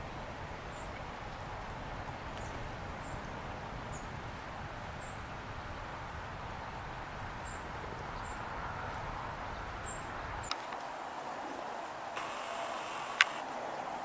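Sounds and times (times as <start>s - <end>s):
outdoor background hiss: 0.0s - 14.0s
sharp click: 12.2s - 13.4s.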